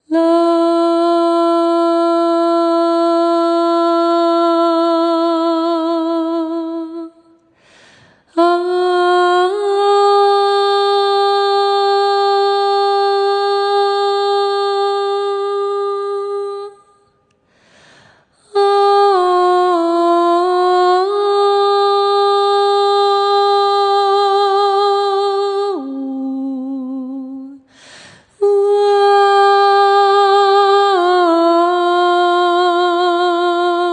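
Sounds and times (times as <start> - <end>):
singer breathing: 7.5 - 8.3, 17.4 - 18.4, 27.6 - 28.4.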